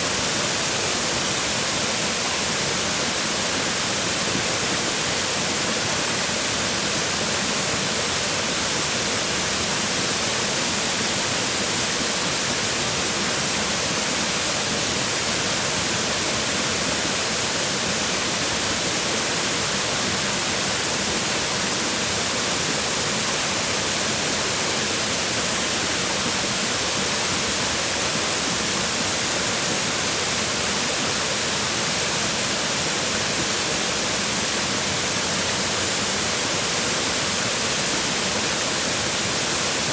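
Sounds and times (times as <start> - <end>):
waterfall splashing on rocks: 0.0 - 39.9.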